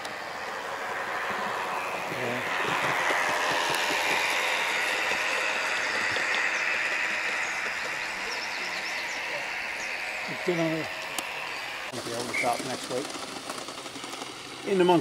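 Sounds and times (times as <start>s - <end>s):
train running: 0.0s - 15.0s.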